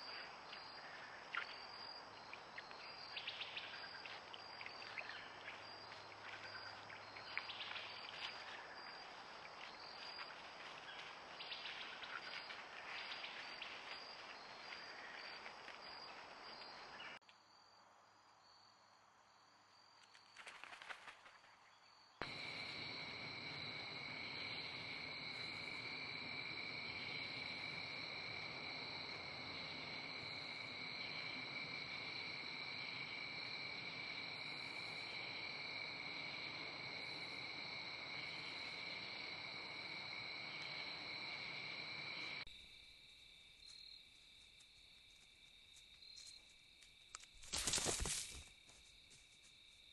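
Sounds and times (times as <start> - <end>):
crickets trilling: 0.0 - 49.9
brief rustle: 47.1 - 48.6.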